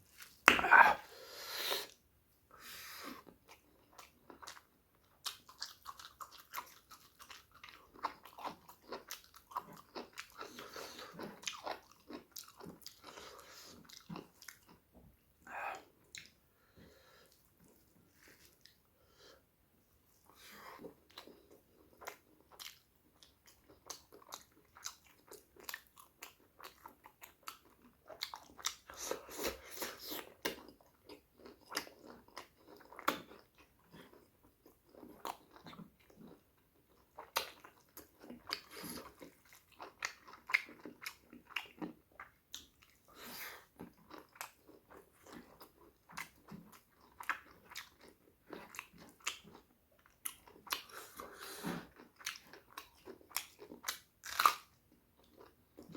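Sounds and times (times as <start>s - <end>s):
mouth clicks and smacks: 0.4s - 1.0s
man chewing food: 2.6s - 19.4s, 20.0s - 55.9s.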